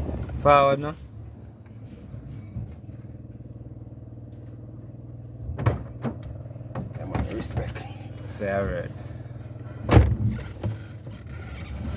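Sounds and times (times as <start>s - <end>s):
car engine running: 2.7s - 11.9s.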